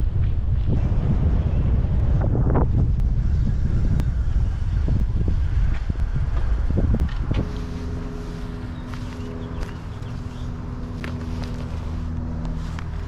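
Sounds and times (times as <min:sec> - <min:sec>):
road vehicle rumbling: 0:00.0 - 0:13.0.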